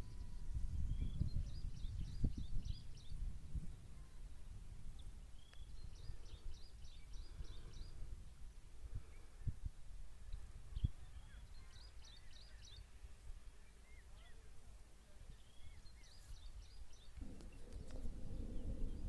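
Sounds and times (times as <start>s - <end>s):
small birds chirping: 0.0s - 19.0s
low rumble: 17.2s - 19.0s.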